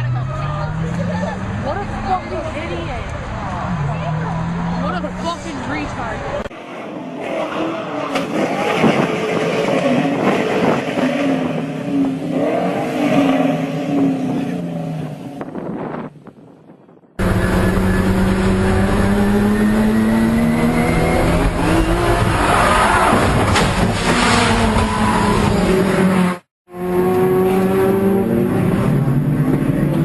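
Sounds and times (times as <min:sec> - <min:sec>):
car engine revving hard: 0:06.8 - 0:15.2, 0:17.2 - 0:30.0.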